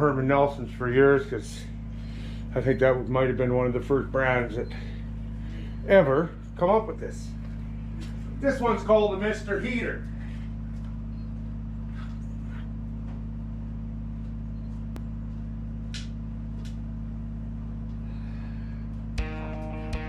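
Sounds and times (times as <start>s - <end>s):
heater humming: 0.0s - 20.0s
guitar music: 19.2s - 20.0s.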